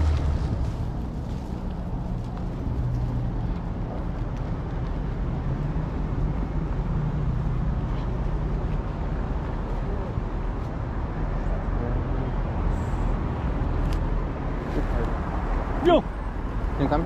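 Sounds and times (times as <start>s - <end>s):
traffic: 0.0s - 17.0s.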